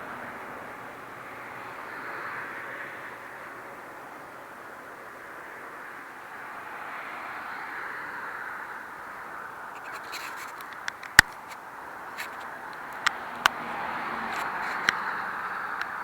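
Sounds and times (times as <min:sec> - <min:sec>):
steady hiss: 0:00.0 - 0:16.0
sharp clicks and knocks: 0:09.8 - 0:11.6.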